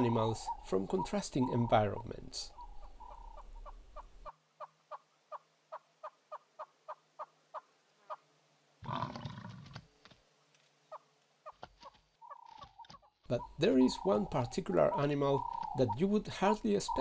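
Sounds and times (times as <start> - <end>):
bird calling short notes: 12.2 - 16.1.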